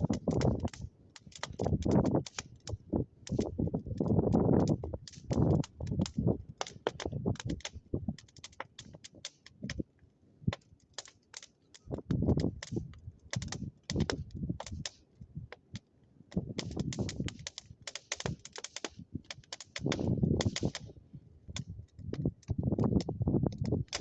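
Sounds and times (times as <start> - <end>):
bonfire crackling and popping: 0.0 - 24.0.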